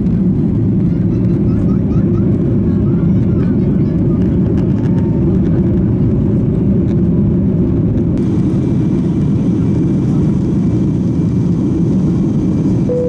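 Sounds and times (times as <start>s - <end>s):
jet engines and airflow rumble: 0.0s - 13.0s.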